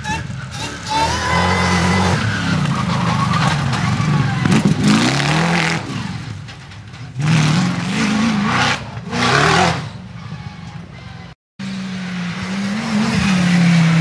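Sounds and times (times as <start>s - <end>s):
car engine revving hard: 0.0s - 3.1s, 7.2s - 10.0s.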